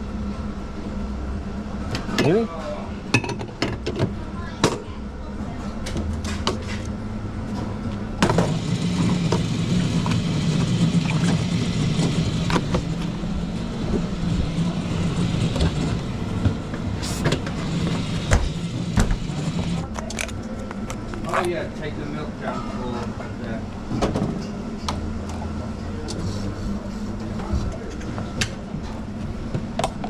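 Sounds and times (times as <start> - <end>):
espresso machine pump humming: 8.2 - 19.9, 26.1 - 27.8.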